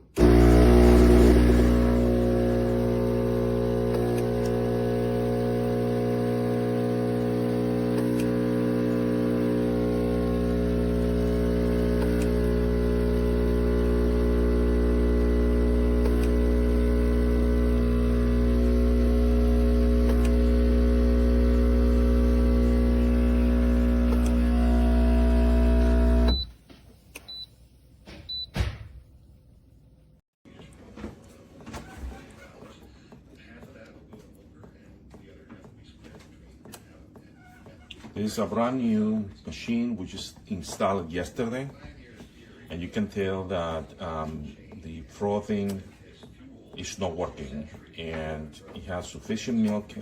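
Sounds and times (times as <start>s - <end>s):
espresso machine pump humming: 0.1s - 26.5s.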